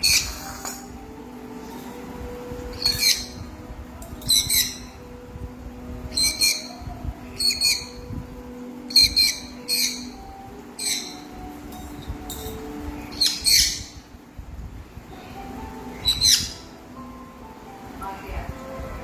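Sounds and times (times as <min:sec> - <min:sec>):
parrot squawking: 0:02.7 - 0:03.5, 0:06.1 - 0:08.1, 0:08.9 - 0:11.4, 0:13.1 - 0:14.1, 0:15.9 - 0:16.8.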